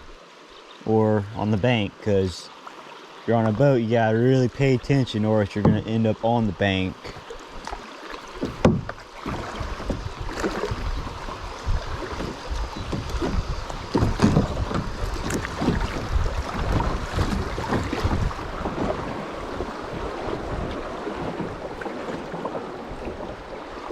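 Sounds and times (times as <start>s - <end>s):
river water sloshing: 0.0s - 23.9s
sharp knocks: 5.6s - 5.9s, 8.4s - 9.0s
wind buffeting microphone: 8.4s - 21.8s.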